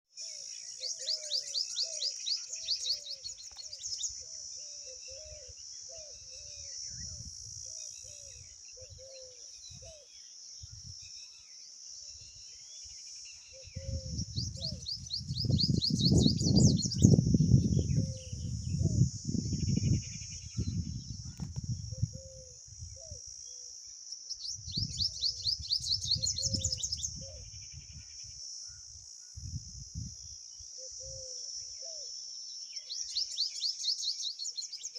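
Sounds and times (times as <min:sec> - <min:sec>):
high insect drone: 0:00.2 - 0:34.9
birds chirping: 0:00.6 - 0:10.3, 0:12.8 - 0:19.0, 0:24.3 - 0:27.4.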